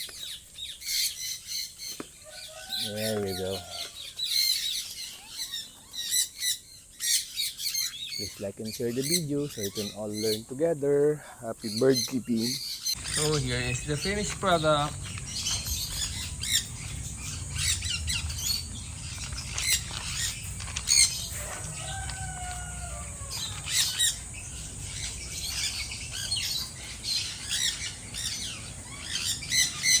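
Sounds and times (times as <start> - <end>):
birds chirping and squawking: 0.0 - 30.0
steady low rumble: 13.0 - 21.8.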